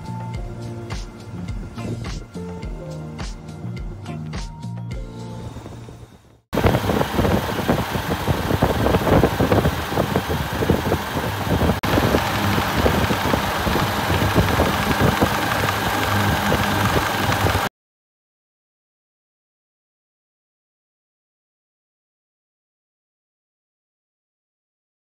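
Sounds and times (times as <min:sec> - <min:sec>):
refrigeration compressor running: 0:05.4 - 0:17.7.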